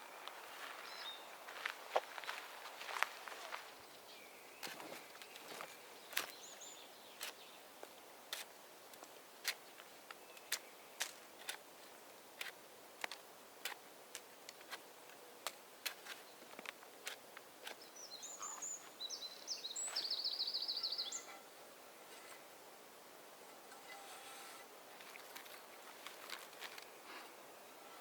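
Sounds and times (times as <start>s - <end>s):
songbird chirping and trilling: 0.0s - 1.6s, 2.8s - 7.7s, 17.6s - 21.5s
quiet forest ambience: 0.0s - 28.0s.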